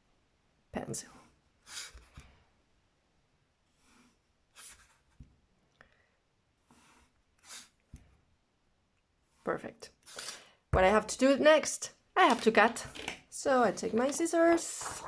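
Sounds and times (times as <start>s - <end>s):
pencil scratching on paper: 1.6s - 2.2s, 3.7s - 5.2s, 6.6s - 7.8s.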